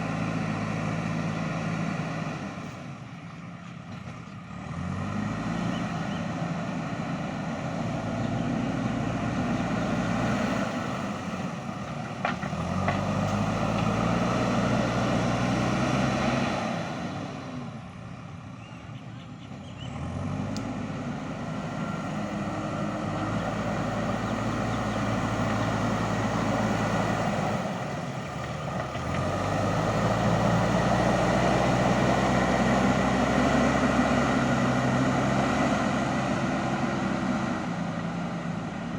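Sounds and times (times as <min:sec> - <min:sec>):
diesel engine working under load: 0:00.0 - 0:38.9.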